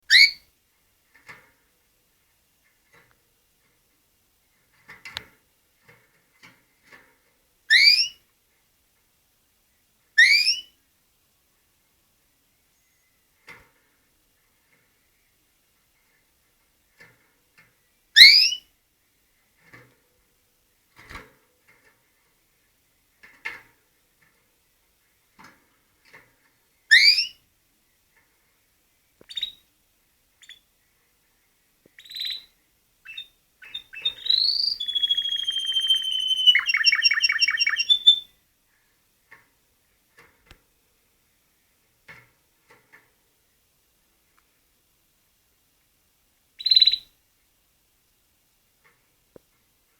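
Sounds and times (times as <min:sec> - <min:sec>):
canary chirping and singing: 0:33.1 - 0:38.2.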